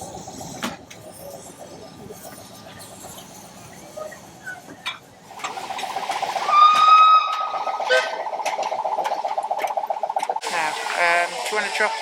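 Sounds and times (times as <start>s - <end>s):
steam locomotive whistle: 6.4s - 8.2s.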